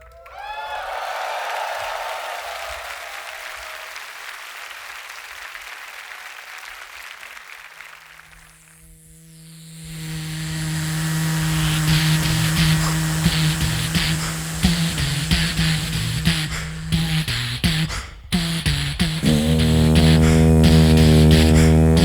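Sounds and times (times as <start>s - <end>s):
crowd applause: 0.0s - 8.5s
beatbox bass drone: 8.9s - 22.0s.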